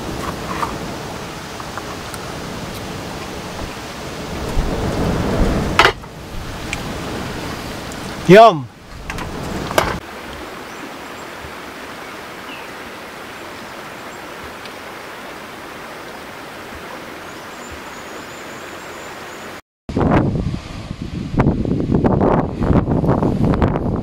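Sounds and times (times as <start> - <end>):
river flowing over stones: 0.0 - 19.6.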